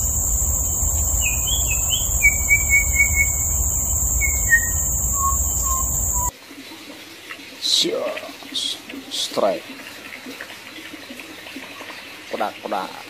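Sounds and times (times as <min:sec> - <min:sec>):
bird singing whistled notes: 0:00.0 - 0:06.3
high-pitched insect drone: 0:00.0 - 0:06.3.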